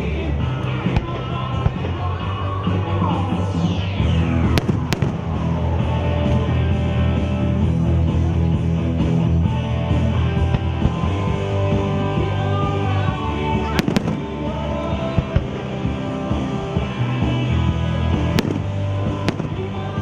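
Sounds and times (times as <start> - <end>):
music playing: 0.0 - 20.0
sharp firework bangs: 4.5 - 5.4, 18.4 - 19.7.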